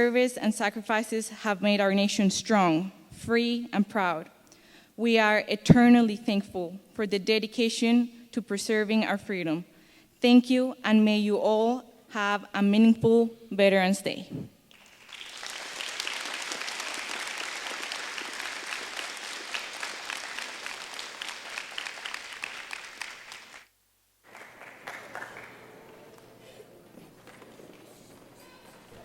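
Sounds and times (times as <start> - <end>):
audience applauding: 14.7 - 26.4.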